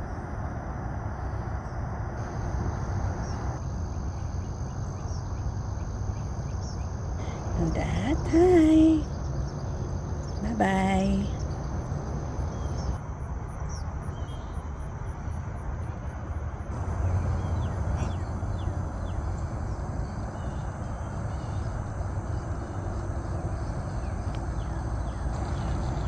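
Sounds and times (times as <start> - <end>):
low rumble and rustle: 0.0 - 26.0
faint bird chirps: 16.8 - 26.0.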